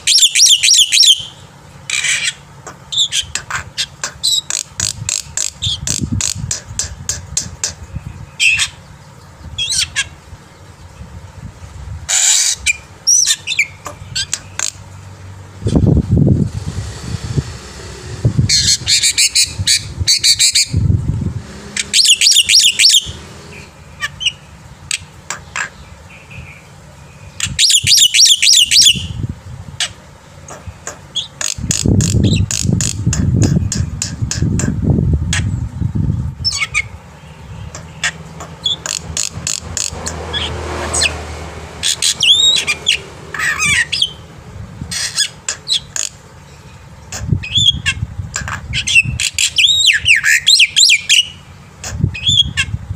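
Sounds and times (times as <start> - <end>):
starling singing harsh chatter: 0.0 - 11.3, 12.1 - 35.6, 36.4 - 52.9
low rumbling: 4.7 - 28.0, 28.8 - 45.5.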